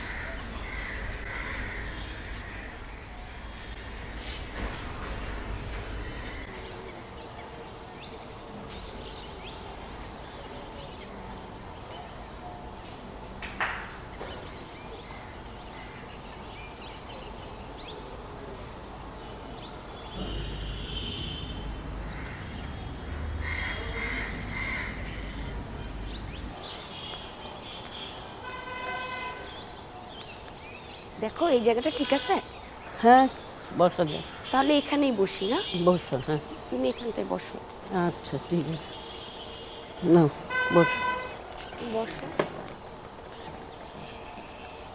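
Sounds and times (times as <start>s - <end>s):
crows cawing: 0.0s - 3.0s, 22.1s - 22.7s, 23.4s - 25.5s, 38.9s - 42.8s
outdoor background noise: 0.0s - 44.9s.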